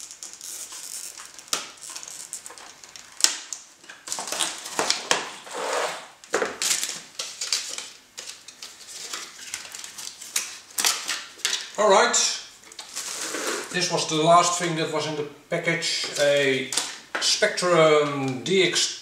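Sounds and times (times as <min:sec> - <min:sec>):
packaging crinkling and rustling: 0:00.0 - 0:11.8, 0:12.6 - 0:13.9, 0:16.0 - 0:17.4.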